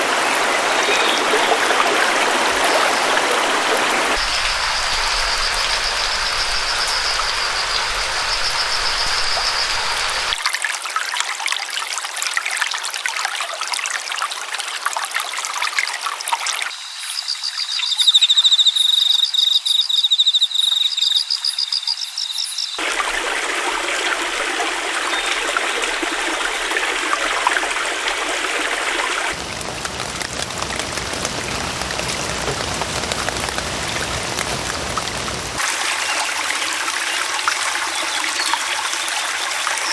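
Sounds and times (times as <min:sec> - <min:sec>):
stream water trickling: 0:00.0 - 0:39.9
high rapidly pulsing call: 0:04.2 - 0:10.4, 0:16.7 - 0:22.8.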